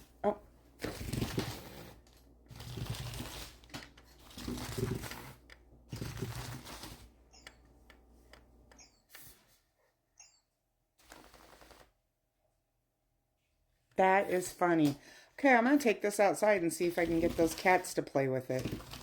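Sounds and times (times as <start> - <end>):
cat toy rustling and whirring: 0.8 - 7.6, 11.0 - 12.0, 16.9 - 17.9, 18.5 - 19.0
electronic bird chirps: 8.7 - 9.1, 10.2 - 10.5.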